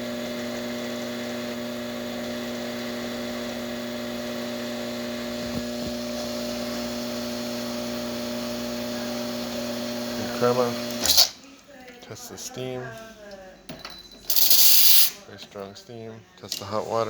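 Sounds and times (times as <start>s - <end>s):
espresso machine pump humming: 0.0s - 11.2s.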